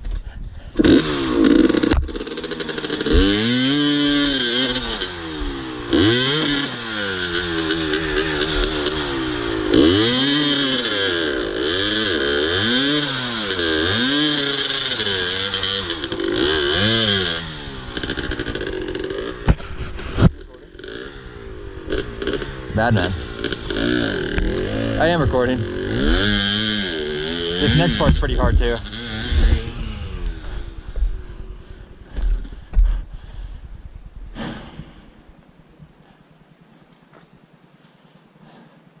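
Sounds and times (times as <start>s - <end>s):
dirt bike engine revving: 0.7s - 33.5s.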